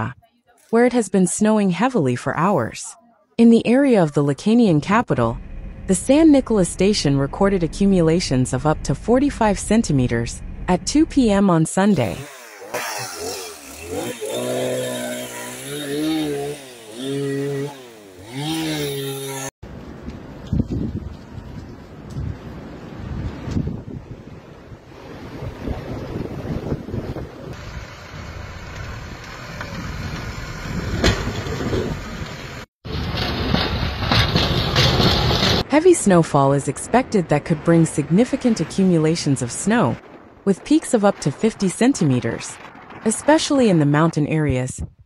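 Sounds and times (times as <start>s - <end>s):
low rumbling outdoor noise: 5.0s - 11.3s, 36.8s - 43.3s
engine revving: 12.0s - 19.5s.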